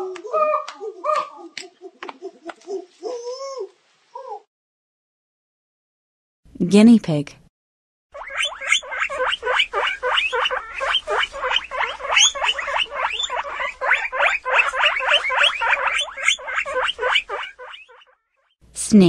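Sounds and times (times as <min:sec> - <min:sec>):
guinea pig squeaking: 0:08.2 - 0:18.1.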